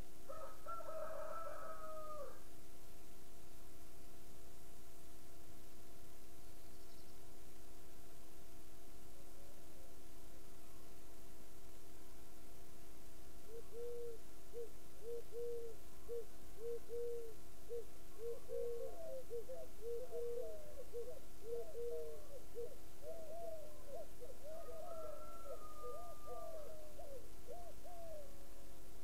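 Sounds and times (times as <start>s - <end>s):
faint steady hum: 0.0s - 29.0s
birds hooting: 13.6s - 28.3s.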